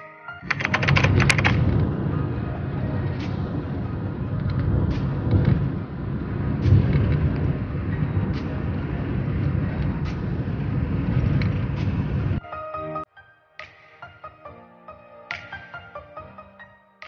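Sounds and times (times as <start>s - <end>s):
road and engine rumble in car: 1.5s - 12.4s.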